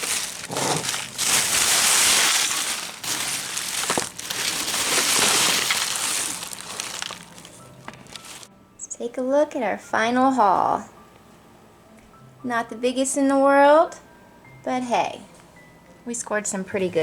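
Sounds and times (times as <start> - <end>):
plastic bags rustling: 0.0 - 8.5.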